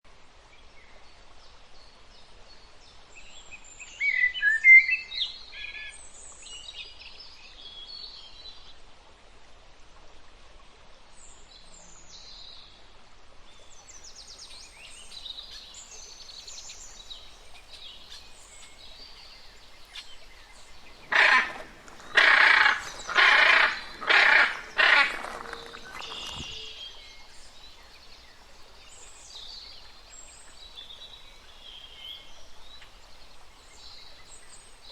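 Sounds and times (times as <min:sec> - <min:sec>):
birds chirping: 0:14.7 - 0:28.4
harsh bird squawks: 0:20.9 - 0:26.7.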